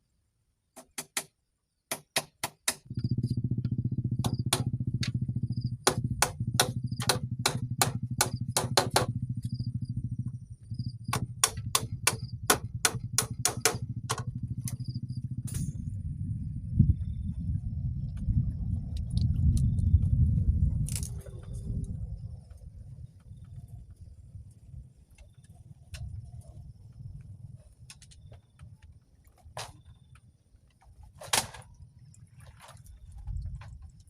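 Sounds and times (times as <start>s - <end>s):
low engine hum: 2.8s - 29.2s
sharp tool strikes: 5.9s - 9.1s, 11.1s - 14.3s.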